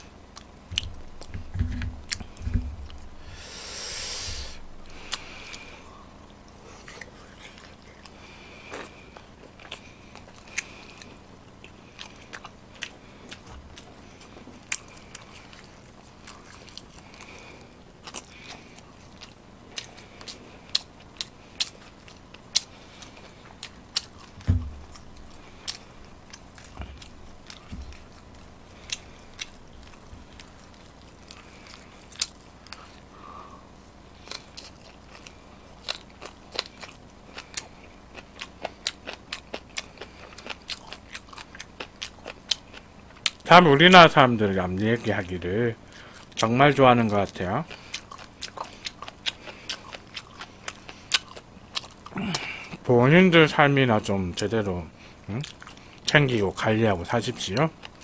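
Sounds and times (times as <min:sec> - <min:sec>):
person chewing with mouth clicks: 0:00.0 - 0:03.2, 0:04.0 - 0:33.1, 0:34.2 - 0:43.4, 0:47.2 - 0:52.9, 0:55.1 - 0:56.4, 0:57.6 - 0:58.0
low thumps: 0:00.7 - 0:03.3, 0:24.4 - 0:25.0
breathy hiss: 0:03.1 - 0:09.2, 0:32.7 - 0:34.4.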